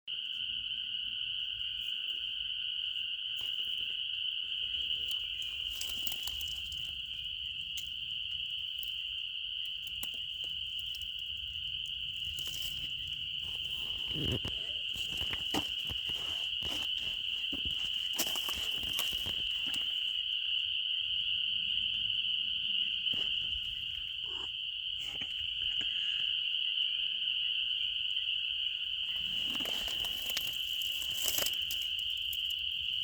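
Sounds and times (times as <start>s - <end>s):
insects chirping: 0.1s - 33.0s
rustles and clicks: 4.9s - 7.2s, 12.1s - 20.2s, 29.1s - 32.5s.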